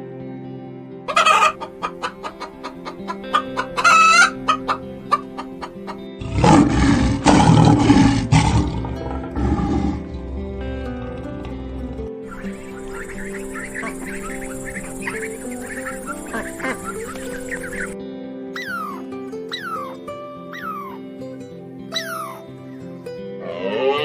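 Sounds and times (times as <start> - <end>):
background music: 0.0 - 24.0
chickens clucking: 1.1 - 6.7, 12.2 - 18.0.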